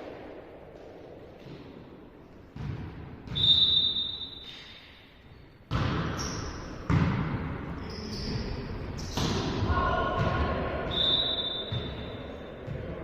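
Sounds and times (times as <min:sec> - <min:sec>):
referee's whistle blast: 0:03.3 - 0:04.5, 0:10.9 - 0:12.2.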